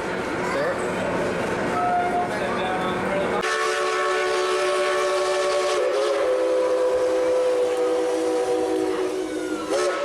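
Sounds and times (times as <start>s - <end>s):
steam locomotive chime whistle: 3.4s - 10.0s.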